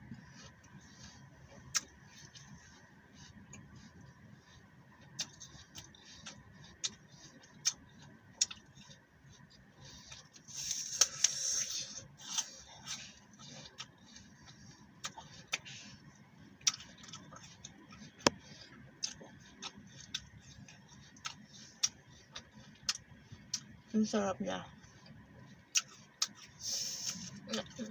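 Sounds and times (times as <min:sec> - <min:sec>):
chewing crunches: 0:05.0 - 0:15.7, 0:16.6 - 0:23.8, 0:25.0 - 0:27.4.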